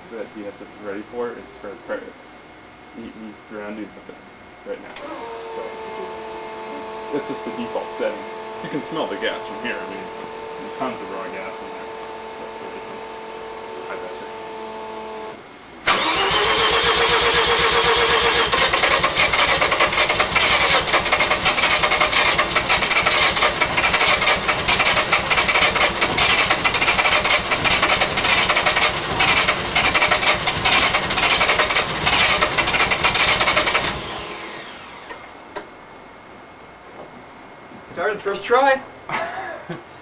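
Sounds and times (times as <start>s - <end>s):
engine whine spinning down: 5.0s - 35.4s
rotary engine running unevenly: 15.9s - 35.3s.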